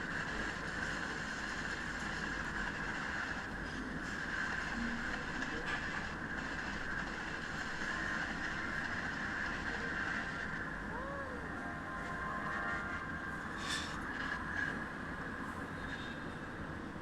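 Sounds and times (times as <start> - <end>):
train wheels on rails: 0.0 - 10.8.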